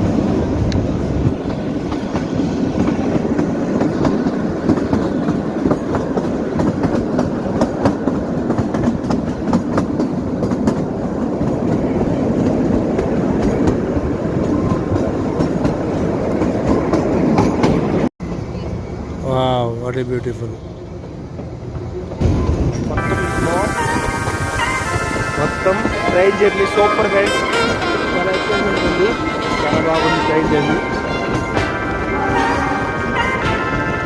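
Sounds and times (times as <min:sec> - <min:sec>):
wheels clacking over rail joints: 0:00.0 - 0:18.1
train coaches rumbling: 0:00.0 - 0:34.0.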